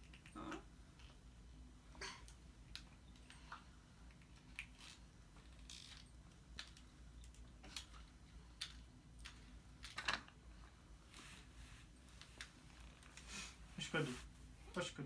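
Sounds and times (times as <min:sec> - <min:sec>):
faint clicks and light taps: 0:02.2 - 0:13.3.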